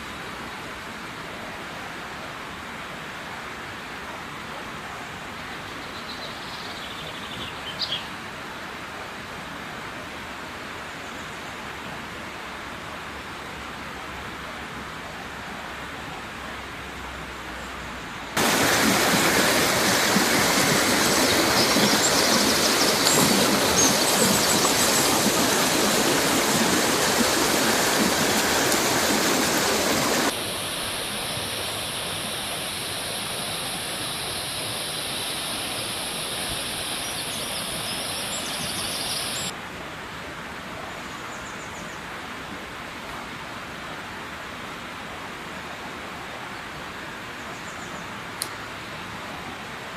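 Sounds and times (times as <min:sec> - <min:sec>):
river rushing over rocks: 0:15.7 - 0:40.6.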